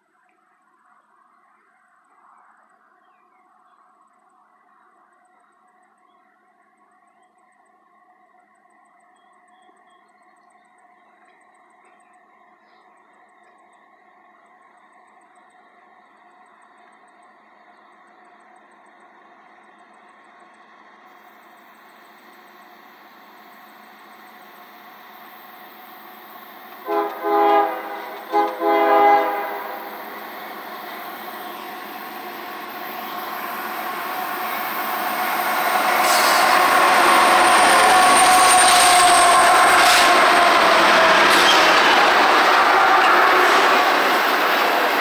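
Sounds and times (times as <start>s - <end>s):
diesel locomotive engines: 0.0s - 45.0s
locomotive horn blasts: 26.8s - 30.1s
wheels on rails: 29.3s - 45.0s.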